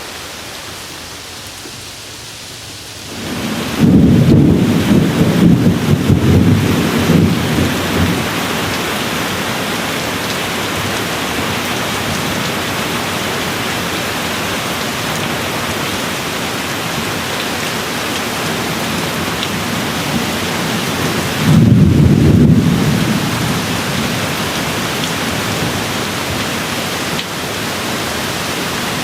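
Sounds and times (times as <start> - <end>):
steady rain falling: 0.0 - 29.0
thunder rumbling: 3.1 - 12.4, 18.7 - 26.7.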